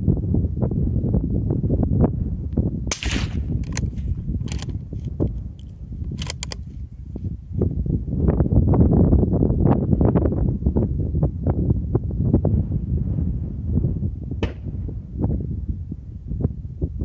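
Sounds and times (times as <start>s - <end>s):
wind rumbling on microphone: 0.0s - 17.0s
suppressed rifle shot: 2.9s - 4.8s, 14.4s - 14.8s
rifle bolt clicks: 2.9s - 6.7s.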